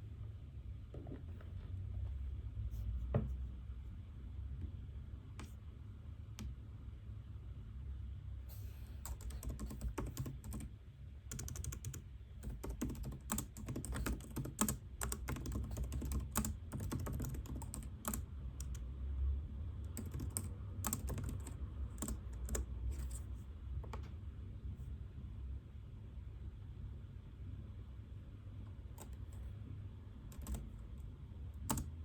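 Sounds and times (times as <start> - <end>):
steady low hum: 0.0 - 32.0
typing on computer keyboard: 9.0 - 10.7, 11.3 - 18.8, 19.8 - 23.2, 29.0 - 29.5, 30.3 - 30.8, 31.6 - 32.0.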